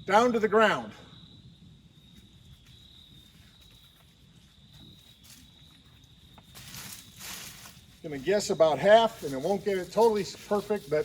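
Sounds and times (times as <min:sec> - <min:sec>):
short rustle: 0:02.5 - 0:11.0.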